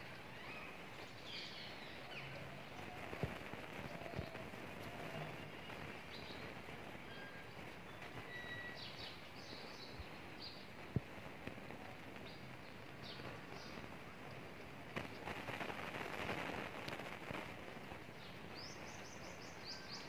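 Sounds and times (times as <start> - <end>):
steady background hiss: 0.0 - 20.0
faint bird chirps: 0.1 - 10.8, 18.2 - 20.0.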